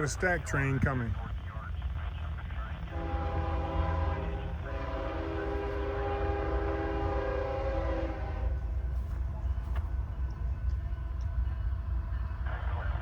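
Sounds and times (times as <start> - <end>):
low rumble of train: 0.0 - 13.0
locomotive air horn: 2.9 - 8.7.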